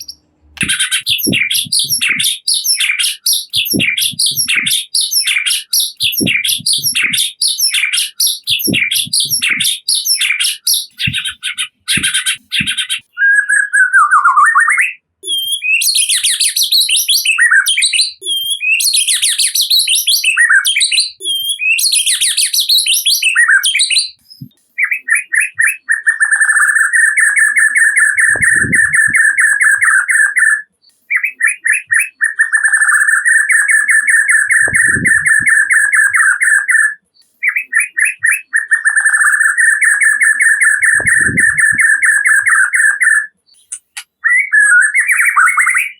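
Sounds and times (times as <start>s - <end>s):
bird rattling repeated notes: 0.0s - 13.1s, 26.5s - 30.5s, 31.9s - 36.8s, 38.9s - 44.0s
bird singing whistled phrases: 0.0s - 45.9s.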